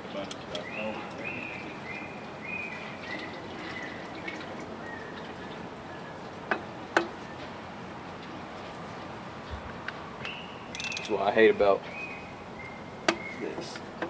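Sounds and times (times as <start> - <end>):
shop background noise: 9.6 - 11.9.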